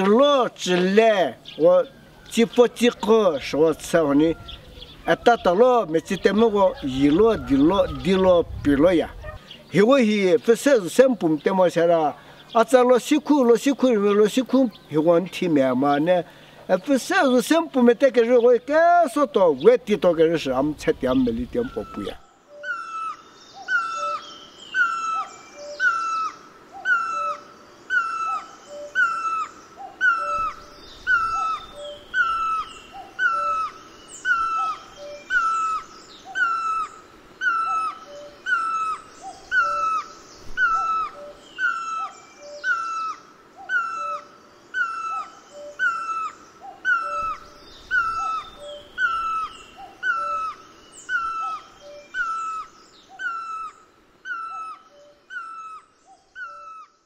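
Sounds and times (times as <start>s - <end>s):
bird calling: 0.0s - 57.0s
fainter calls of other birds: 0.6s - 8.5s, 21.1s - 57.0s.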